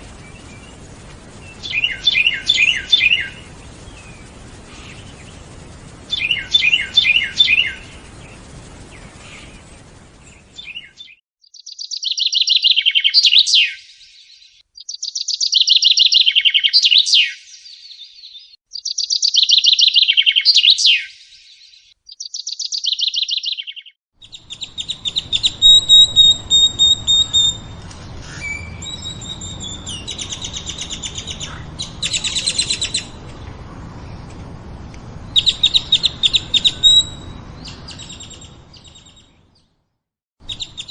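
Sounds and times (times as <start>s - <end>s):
background hiss: 0.0s - 11.2s, 24.2s - 39.1s
songbirds singing: 0.0s - 39.8s, 40.4s - 40.9s
bird whistled notes and trills: 1.4s - 5.3s, 6.1s - 8.4s, 10.3s - 33.2s, 35.3s - 39.4s, 40.4s - 40.9s.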